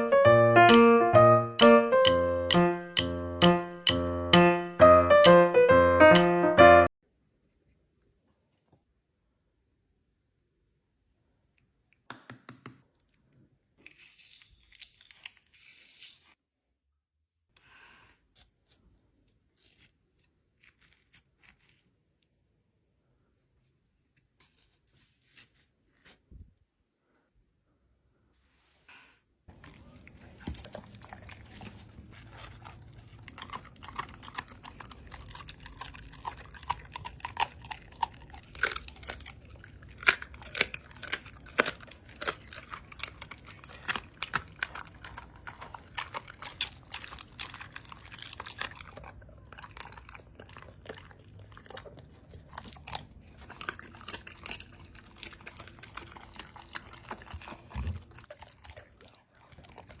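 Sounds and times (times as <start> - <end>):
crunching and chewing: 13.0 - 16.3, 29.5 - 60.0.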